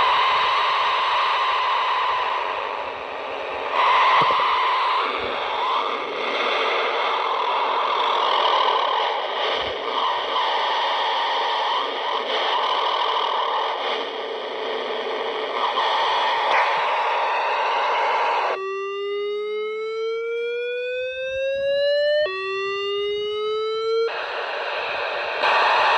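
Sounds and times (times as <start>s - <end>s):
radio static hiss: 0.0s - 18.6s, 24.0s - 25.9s
faint steady whines: 0.0s - 25.9s.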